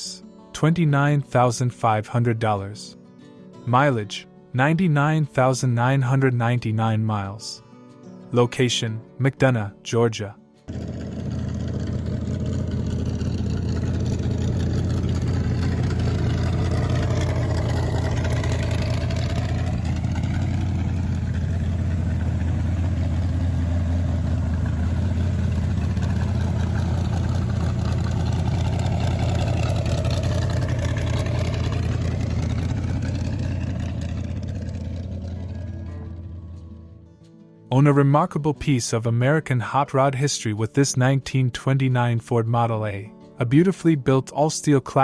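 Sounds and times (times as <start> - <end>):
car engine idling: 10.7 - 37.0.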